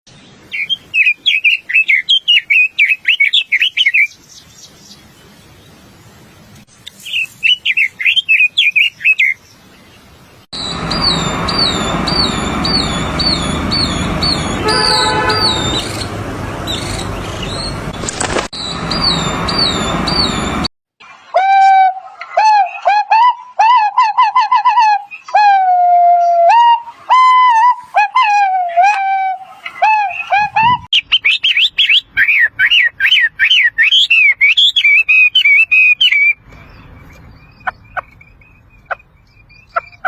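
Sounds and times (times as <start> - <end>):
songbird twittering: 0.5 - 5.1, 6.9 - 9.6, 10.6 - 17.8, 18.6 - 20.5, 28.6 - 40.0
bird repeating slurred whistle: 10.6 - 16.1, 26.2 - 36.4.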